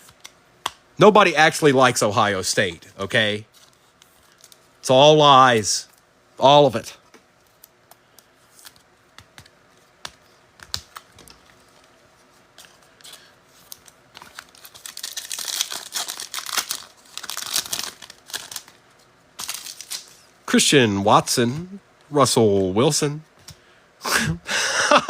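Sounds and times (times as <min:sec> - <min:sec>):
cards clicking and tapping: 0:08.6 - 0:11.6
wrapper crinkling and tearing: 0:13.1 - 0:20.3.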